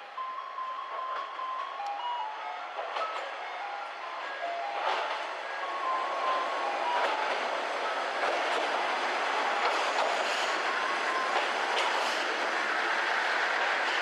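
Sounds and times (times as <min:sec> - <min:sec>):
train running on rails: 0:00.0 - 0:14.0
wheels clicking over rail joints: 0:04.2 - 0:14.0.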